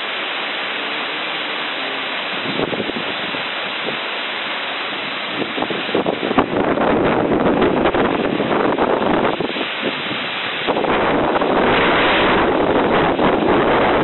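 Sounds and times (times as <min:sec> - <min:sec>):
rushing floodwater: 0:00.0 - 0:14.0
wind buffeting microphone: 0:02.3 - 0:04.0, 0:05.3 - 0:14.0.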